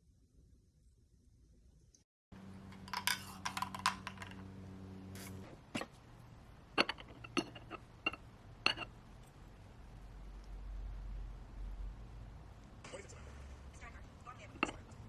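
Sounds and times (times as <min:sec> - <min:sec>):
electrical hum: 0:02.3 - 0:15.0
dishes clattering and clinking: 0:02.6 - 0:04.5, 0:05.2 - 0:06.0, 0:06.7 - 0:09.3, 0:14.4 - 0:15.0.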